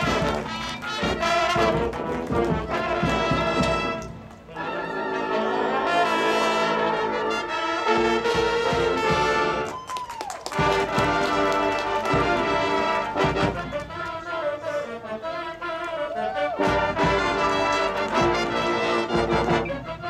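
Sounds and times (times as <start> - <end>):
brass band playing chords: 0.0 - 9.7, 10.4 - 20.0.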